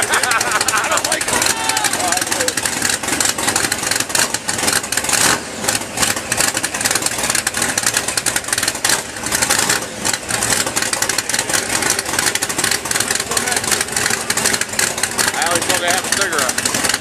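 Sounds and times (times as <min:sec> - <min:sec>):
dense rapid crackle: 0:00.0 - 0:17.0
truck engine running hard: 0:00.0 - 0:17.0.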